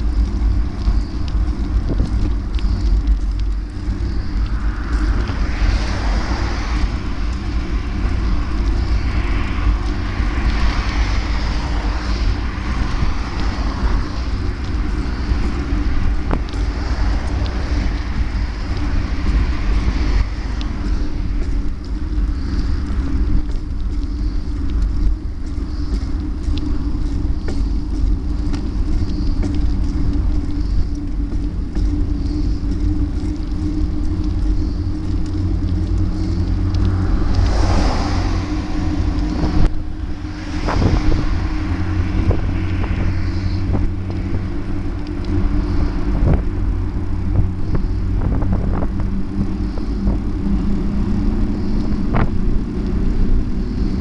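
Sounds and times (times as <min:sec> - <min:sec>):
constant humming drone: 0:00.0 - 0:54.0
heavy wind rumble: 0:00.0 - 0:54.0
passing traffic hiss: 0:34.4 - 0:54.0.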